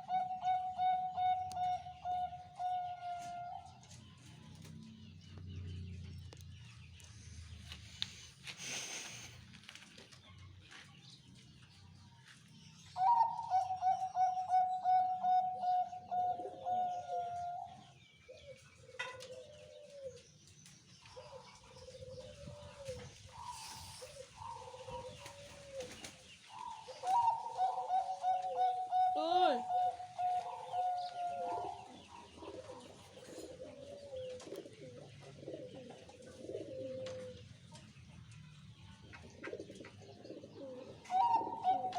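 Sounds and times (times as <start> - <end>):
dove cooing: 0.0 - 4.0, 13.0 - 20.2, 21.1 - 37.5, 39.1 - 41.9.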